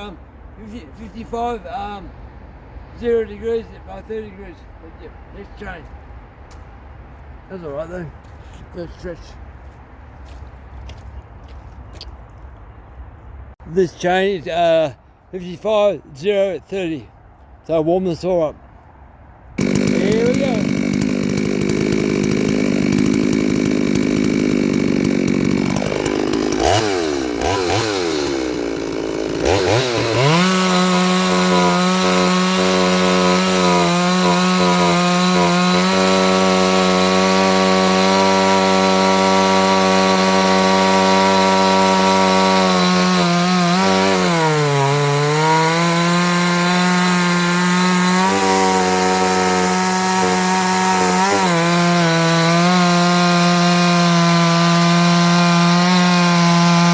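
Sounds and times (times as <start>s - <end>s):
chainsaw cutting log: 19.6s - 56.9s.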